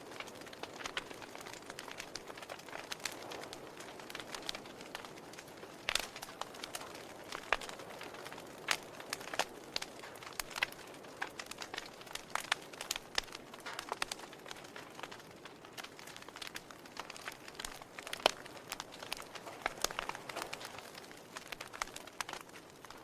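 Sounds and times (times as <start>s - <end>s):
fire pops and snaps: 0.0s - 23.0s.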